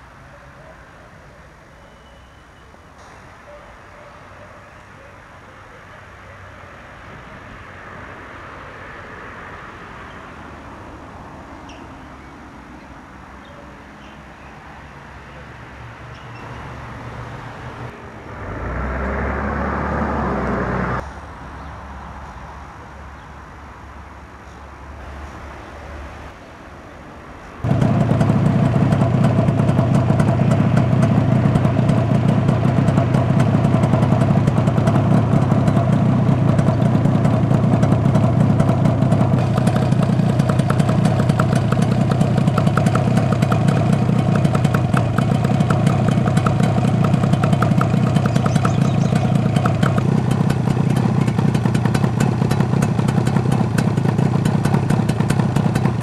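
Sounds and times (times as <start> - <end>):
motorcycle engine starting and idling: 27.6 - 56.0.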